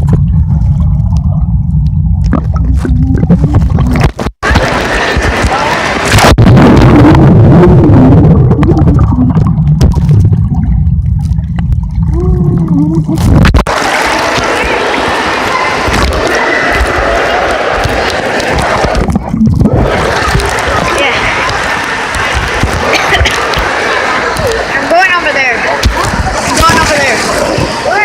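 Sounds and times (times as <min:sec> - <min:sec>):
underwater low rumble: 0:00.0 - 0:24.8
water churning underwater: 0:00.0 - 0:28.0
muffled wavering voice: 0:12.1 - 0:13.3.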